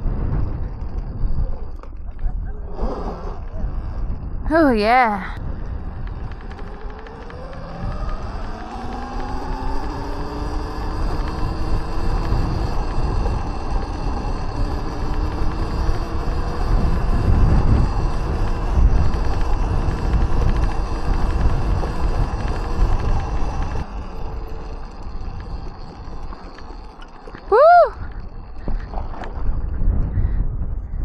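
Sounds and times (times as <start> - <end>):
wind buffeting microphone: 0.0 - 31.0
electric motor whine: 5.4 - 30.1.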